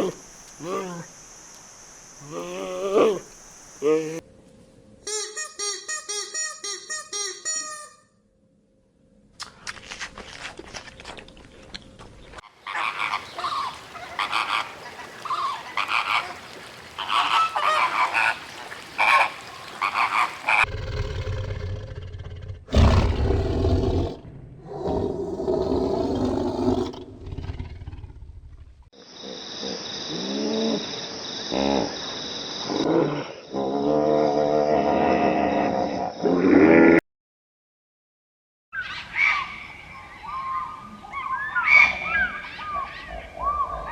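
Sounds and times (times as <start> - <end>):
rumbling: 20.7 - 28.9.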